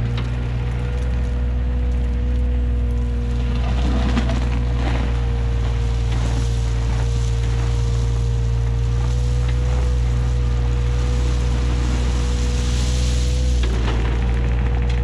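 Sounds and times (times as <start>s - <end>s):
diesel engine running: 0.0s - 15.0s
steady whine: 0.0s - 15.0s
knocks and rattles: 13.5s - 15.0s.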